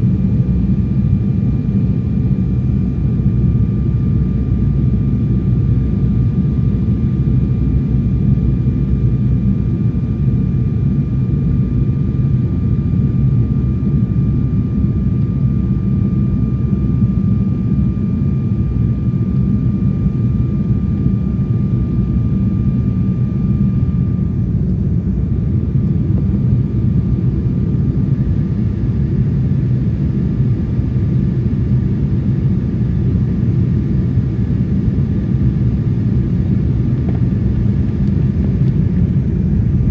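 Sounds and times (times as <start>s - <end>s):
jet cabin rumble: 0.0s - 39.9s.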